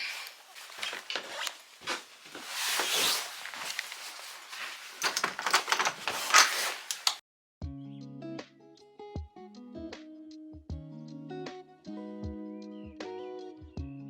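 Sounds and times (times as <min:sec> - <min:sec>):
clicks and knocks of handling: 0:00.0 - 0:07.2
rustling: 0:00.0 - 0:07.2.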